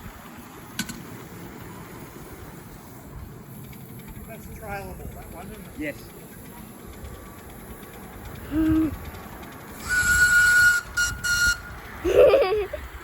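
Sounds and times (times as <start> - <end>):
steam locomotive whistle: 9.8 - 11.8.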